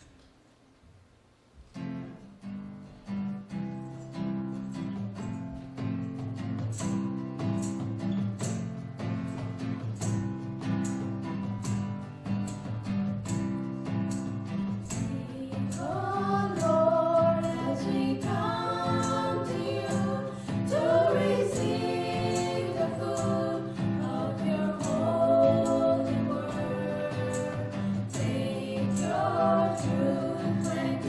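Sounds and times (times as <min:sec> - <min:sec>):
strummed acoustic guitar: 0:01.7 - 0:31.0
group singing gospel: 0:15.0 - 0:31.0.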